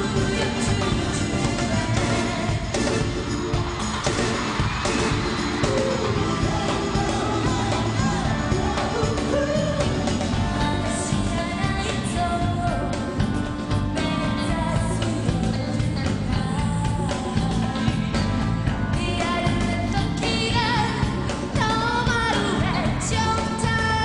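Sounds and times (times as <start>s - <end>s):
dance-pop song with woman singing: 0.0s - 24.0s.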